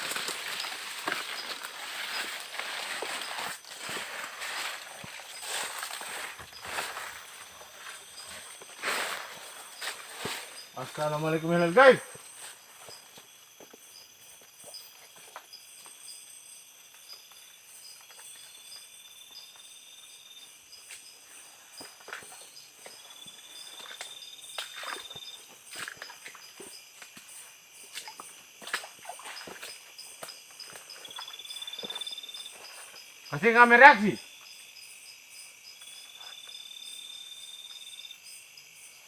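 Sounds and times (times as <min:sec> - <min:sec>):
footsteps crackling on leaf litter: 0:00.0 - 0:12.7
chorus of forest insects: 0:00.0 - 0:39.0
high buzzing insect trill: 0:00.0 - 0:39.0.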